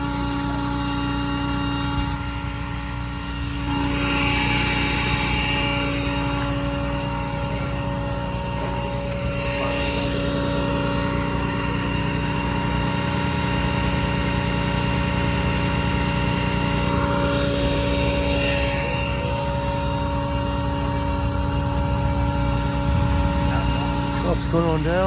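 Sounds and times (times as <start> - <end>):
continuous low rumble: 0.0 - 25.0
steady engine drone: 0.0 - 25.0.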